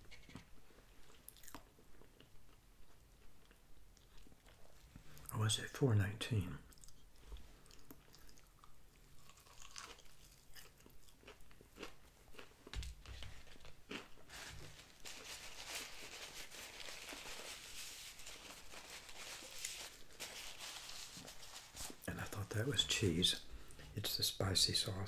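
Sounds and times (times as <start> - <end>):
crunchy chewing of fried chicken: 0.0 - 5.3, 6.7 - 18.8
paper napkin rustling: 14.3 - 22.1.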